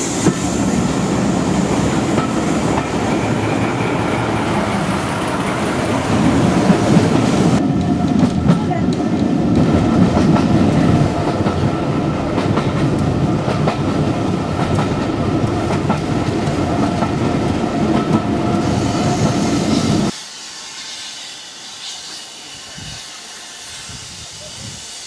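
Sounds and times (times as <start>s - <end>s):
railway carriage rumbling: 0.0s - 20.2s
thin hiss: 18.7s - 25.0s.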